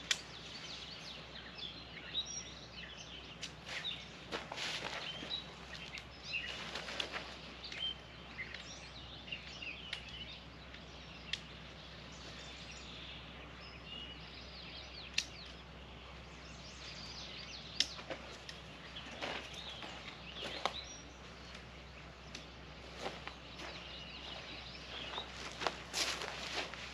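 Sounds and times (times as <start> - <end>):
birds chirping: 0.0 - 26.9
rustling noise: 3.6 - 7.5, 22.8 - 26.9
sharp clicks: 15.0 - 15.6, 17.8 - 18.6.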